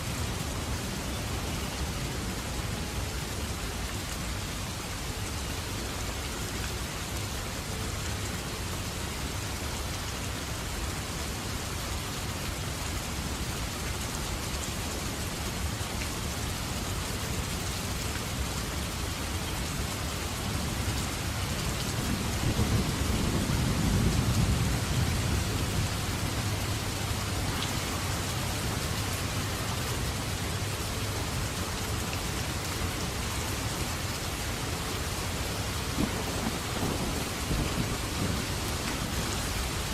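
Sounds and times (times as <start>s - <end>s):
heavy rain: 0.0s - 39.9s
thunder rolling: 35.9s - 38.8s.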